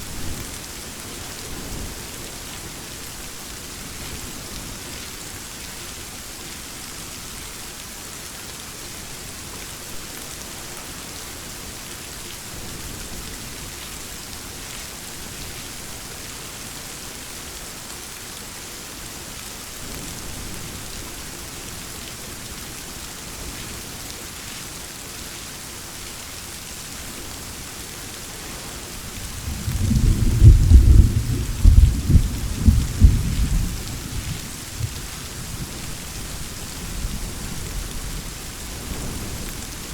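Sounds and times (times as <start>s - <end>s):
rain falling: 0.0s - 39.9s
thunder rumbling: 29.1s - 39.9s.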